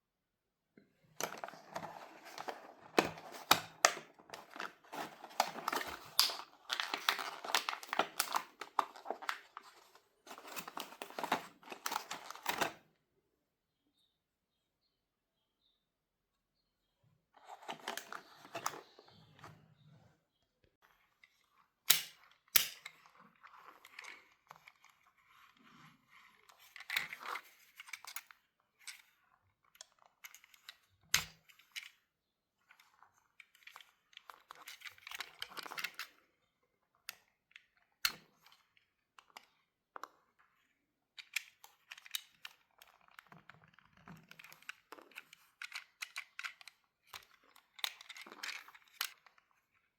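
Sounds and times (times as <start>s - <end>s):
packaging rustling and crinkling: 1.2s - 12.8s
plastic clicks and snaps: 21.9s - 23.0s.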